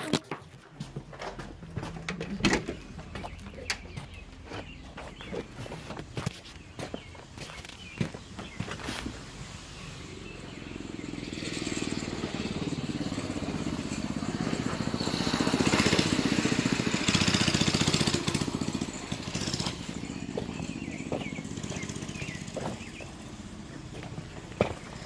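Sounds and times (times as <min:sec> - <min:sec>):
mini bike engine running: 0:10.2 - 0:25.0.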